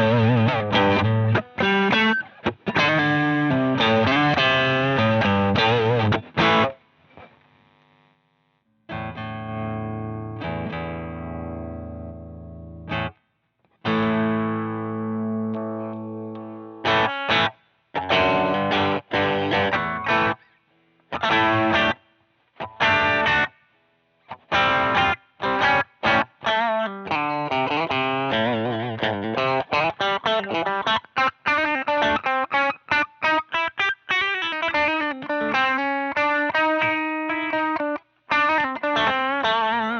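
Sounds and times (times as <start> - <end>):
distorted electric guitar riffs: 0.0 - 8.2, 8.9 - 22.0, 22.6 - 23.7, 24.3 - 39.9.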